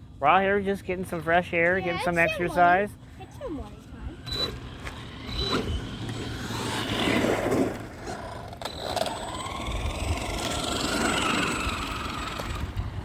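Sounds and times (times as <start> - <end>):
tyres on road: 0.0 - 13.0
electric motor whining: 3.6 - 13.0.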